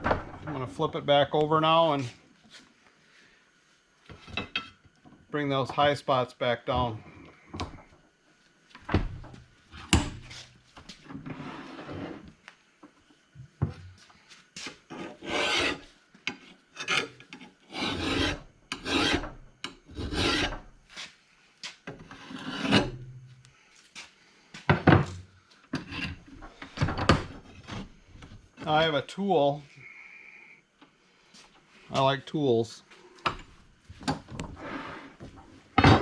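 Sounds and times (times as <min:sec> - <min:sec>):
file rasping on metal blade: 0:14.9 - 0:15.9, 0:16.8 - 0:19.3, 0:19.9 - 0:20.6, 0:22.2 - 0:22.9.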